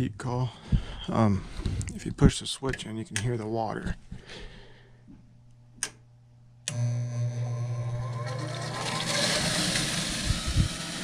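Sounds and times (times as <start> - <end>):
furnace motor humming: 6.6 - 11.0
motor switch click: 6.7 - 6.9.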